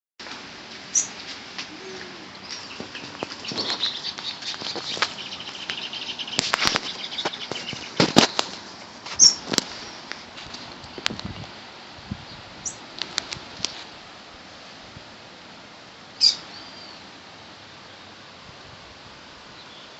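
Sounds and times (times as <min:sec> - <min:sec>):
rain falling: 0:00.2 - 0:12.1.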